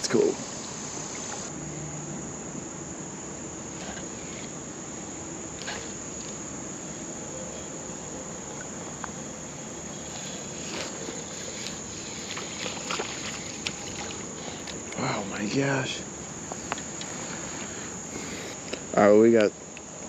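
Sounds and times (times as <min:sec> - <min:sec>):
insects trilling: 0:00.0 - 0:20.0
low hiss: 0:00.0 - 0:20.0.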